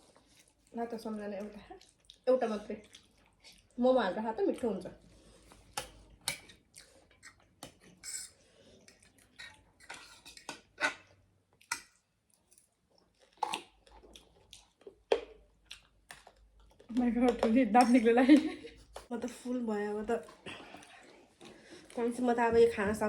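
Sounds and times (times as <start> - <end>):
eating noises: 0.0 - 17.0.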